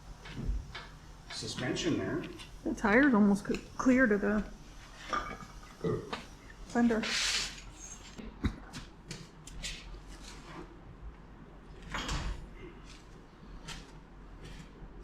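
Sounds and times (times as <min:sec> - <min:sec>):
short hiss: 0:07.0 - 0:07.7.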